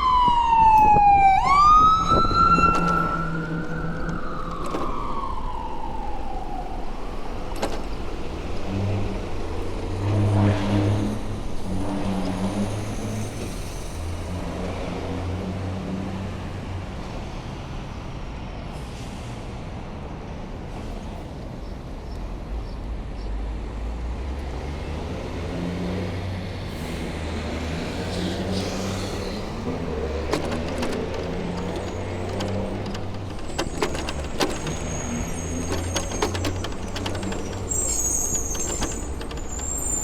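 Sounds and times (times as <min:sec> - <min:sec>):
emergency siren wailing: 0:00.0 - 0:07.6
street traffic: 0:00.0 - 0:40.0
vehicle engine humming: 0:27.9 - 0:40.0.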